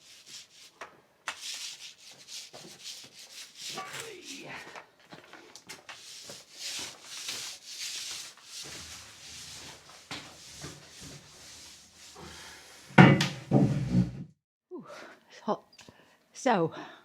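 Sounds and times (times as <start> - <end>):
brush scratching on rough wall: 0.0 - 4.5, 5.7 - 12.3.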